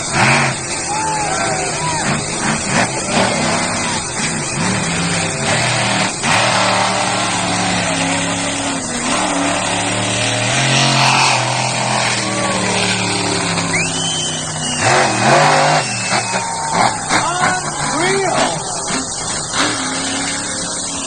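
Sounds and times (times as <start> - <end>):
truck engine revving: 0.0 - 21.0
high whistle: 12.0 - 21.0.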